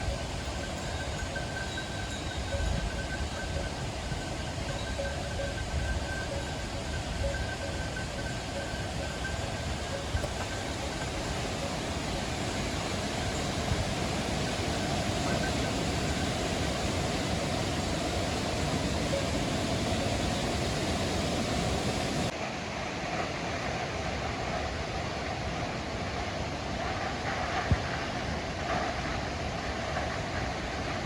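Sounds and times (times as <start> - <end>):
waterfall rushing: 0.0 - 22.3.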